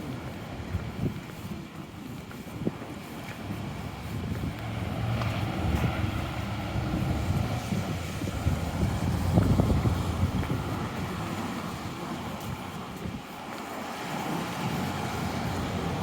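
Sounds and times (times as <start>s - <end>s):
wind buffeting microphone: 0.0s - 16.0s
vehicle engine rumbling past: 3.4s - 10.9s.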